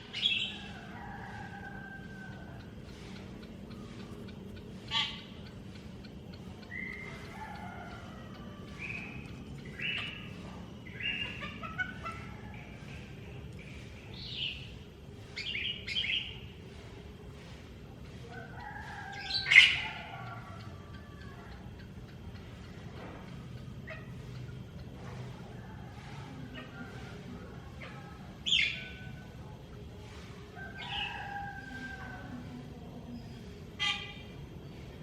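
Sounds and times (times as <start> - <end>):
bird chirping and warbling: 0.0 - 0.8, 6.6 - 7.3, 8.7 - 14.7, 19.2 - 20.0, 28.4 - 29.0.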